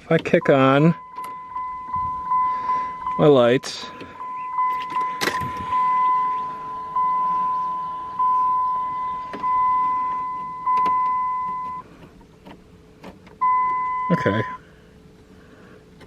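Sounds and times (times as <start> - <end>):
dashboard warning chime: 0.2 - 11.8, 13.4 - 14.6.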